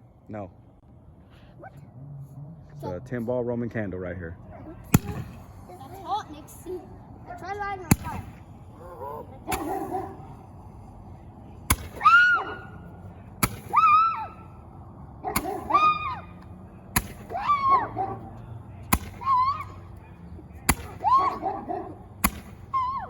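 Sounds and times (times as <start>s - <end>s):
roman candle firework pops: 4.9s - 5.4s, 7.9s - 8.4s, 11.7s - 12.2s, 13.4s - 14.1s, 17.0s - 17.5s, 18.9s - 19.5s, 22.2s - 22.8s.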